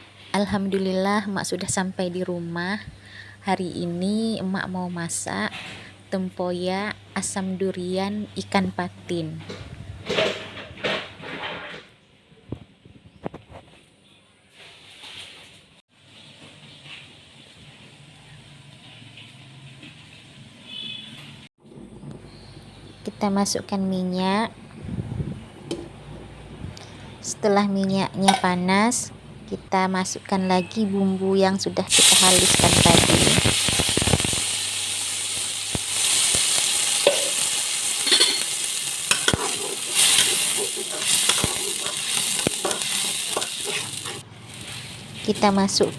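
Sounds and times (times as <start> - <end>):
utensil scraping a pan: 10.0 - 11.9, 38.0 - 44.9
spice paste sizzling in oil: 31.9 - 45.9.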